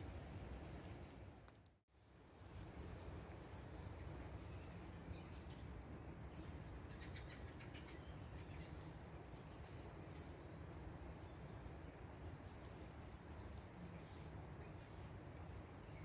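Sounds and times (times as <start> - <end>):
low wind rumble: 0.0 - 1.5
small birds chirping: 2.2 - 12.9.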